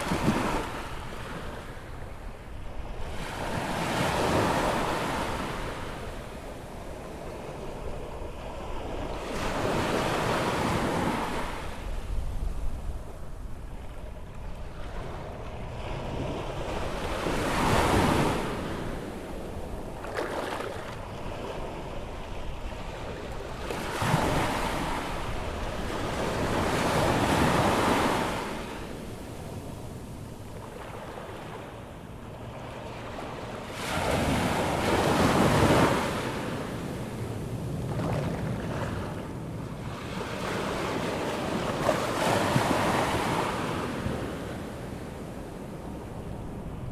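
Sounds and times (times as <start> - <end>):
wind rumble on microphone: 0.0 - 46.9
surf waves breaking: 14.8 - 21.8.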